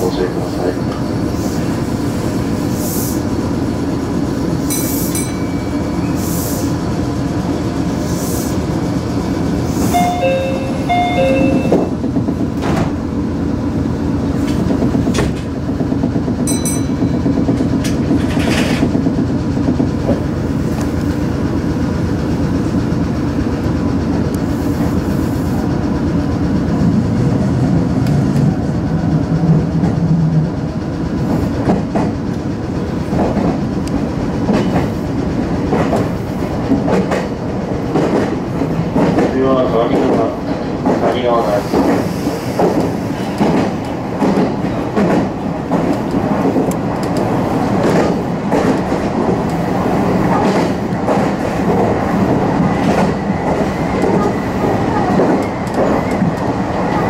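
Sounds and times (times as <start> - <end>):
electric train running: 0.1 - 57.0
two-note electronic tones: 10.0 - 11.9.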